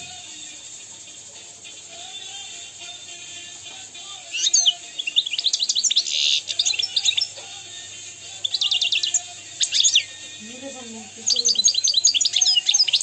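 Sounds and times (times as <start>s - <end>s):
finch twittering trills: 4.2s - 7.6s, 8.3s - 13.0s.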